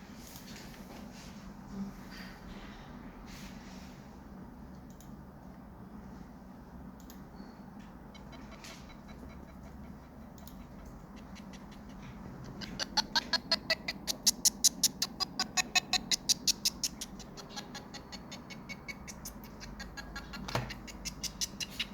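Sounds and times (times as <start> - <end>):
low steady hum: 0.0 - 21.9
high-pitched stuttering sound loop: 7.9 - 21.9.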